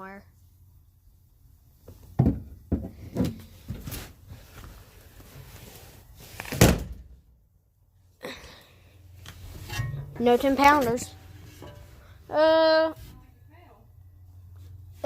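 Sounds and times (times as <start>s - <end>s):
items knocking and rattling: 2.1s - 3.9s.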